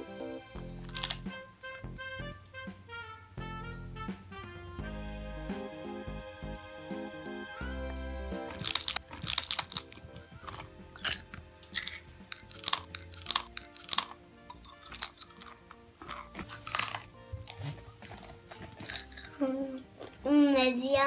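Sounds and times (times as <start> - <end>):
soft background music: 0.0 - 21.0
potato chips crunching: 0.8 - 1.8, 8.5 - 20.2.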